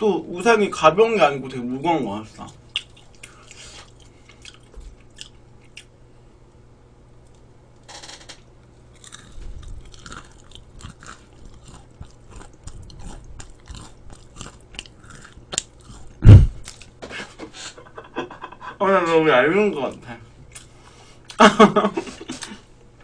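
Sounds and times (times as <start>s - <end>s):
crunching and chewing: 2.5s - 6.0s, 8.6s - 17.0s, 19.9s - 21.4s
loud low thump: 16.2s - 16.6s.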